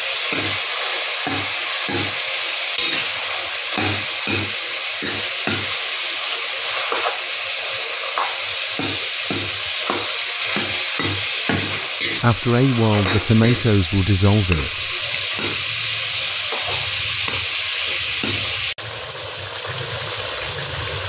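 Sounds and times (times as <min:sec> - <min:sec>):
food sizzling in oil: 0:00.0 - 0:21.0
steel ladle scraping a pan: 0:02.8 - 0:07.4.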